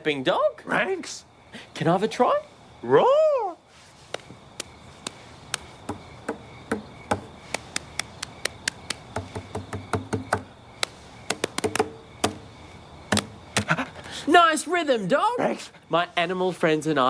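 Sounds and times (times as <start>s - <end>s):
sharp rhythmic paw taps: 4.1s - 12.4s, 13.1s - 13.8s
low pitched knocks: 5.8s - 7.3s, 9.1s - 10.5s, 11.3s - 12.4s.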